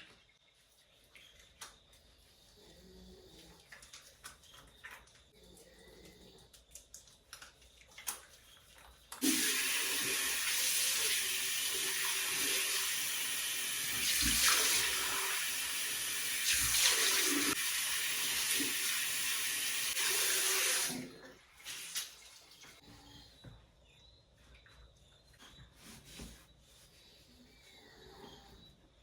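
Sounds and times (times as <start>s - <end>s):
water running from a tap: 9.2s - 22.2s.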